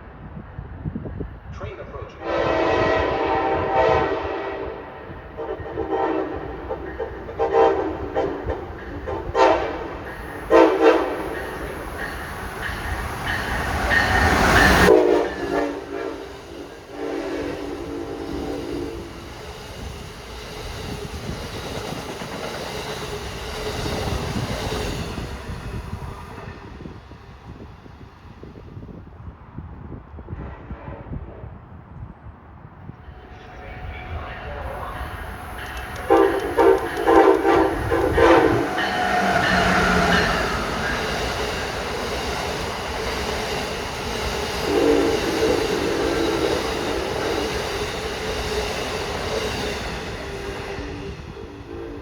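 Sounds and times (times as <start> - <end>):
passing train rumble and clatter: 0.0 - 52.0
locomotive air horn: 2.2 - 11.7, 14.4 - 19.1, 33.3 - 41.4, 44.6 - 47.5.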